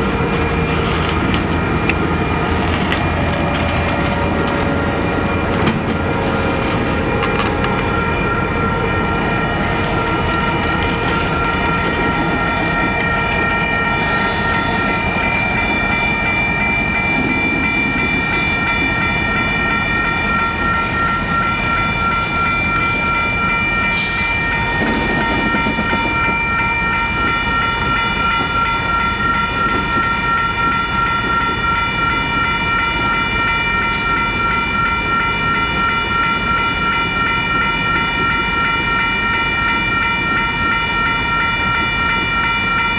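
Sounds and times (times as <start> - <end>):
high ringing tones: 0.0 - 42.9
train rumbling on rails: 0.0 - 42.9.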